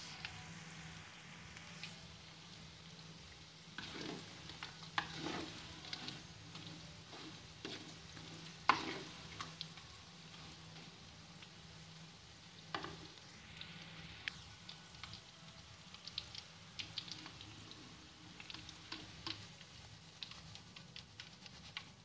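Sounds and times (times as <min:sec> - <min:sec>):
potatoes sizzling in oil: 0:00.0 - 0:22.0
spatula scraping and knocking pan: 0:03.8 - 0:09.6.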